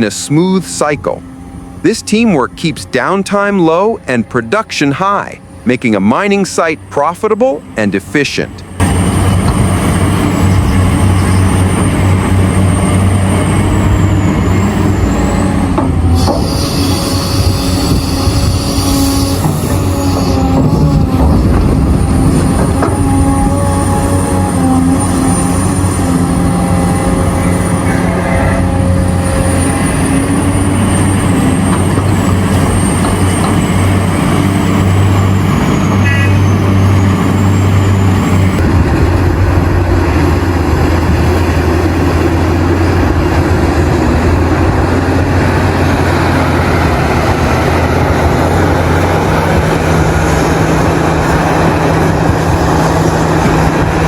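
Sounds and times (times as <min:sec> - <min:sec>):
heavy diesel machinery drone: 0:00.0 - 0:54.0.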